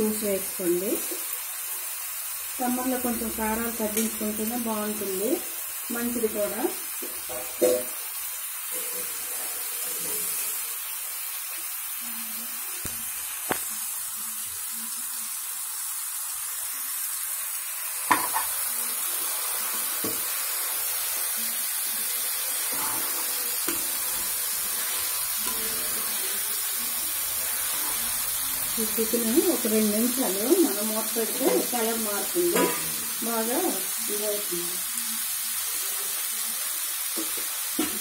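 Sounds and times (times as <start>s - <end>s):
chicken sizzling in hot oil: 0.0s - 38.0s
metal spoon knocking on pot: 18.1s - 18.5s.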